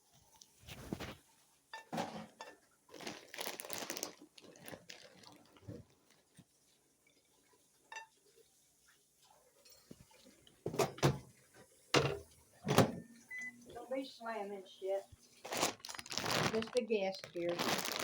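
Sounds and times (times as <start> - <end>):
dishes and utensils clattering: 0.7 - 2.6, 9.6 - 13.5
microwave door banging shut: 12.0 - 13.1.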